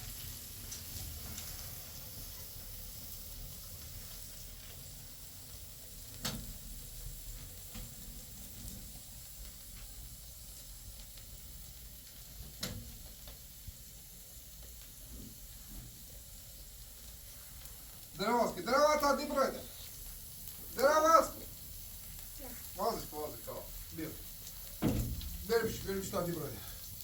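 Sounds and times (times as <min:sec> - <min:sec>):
steady hissing noise: 0:00.0 - 0:27.0.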